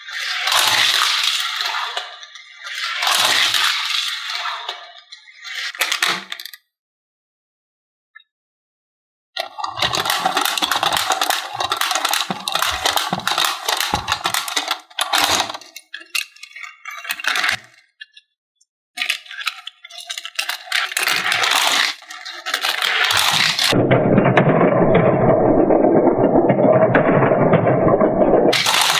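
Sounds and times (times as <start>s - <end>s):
toy cars clattering and clinking: 0.0s - 6.7s, 9.4s - 18.3s, 19.0s - 24.6s, 28.5s - 28.9s.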